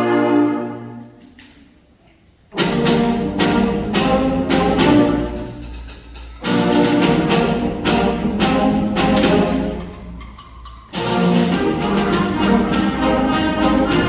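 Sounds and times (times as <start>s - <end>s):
concert band playing: 2.6s - 14.0s.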